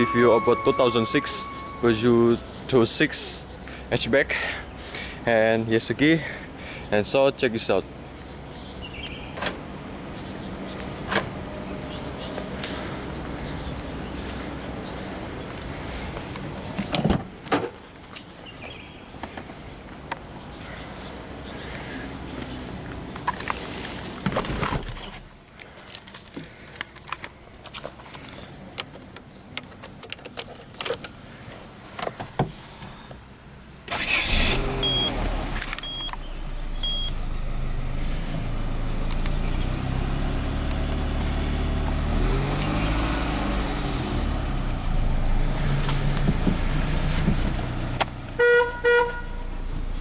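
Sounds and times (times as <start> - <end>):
dashboard beeps: 0.0 - 2.0, 34.8 - 35.2, 35.8 - 36.2, 36.8 - 37.2
car engine cranking and idling: 33.6 - 50.0.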